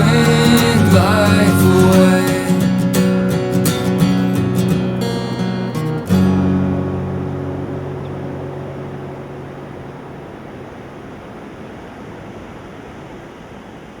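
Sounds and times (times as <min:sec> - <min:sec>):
strummed acoustic guitar chord: 0:00.0 - 0:11.2
steady rushing noise: 0:06.1 - 0:14.0.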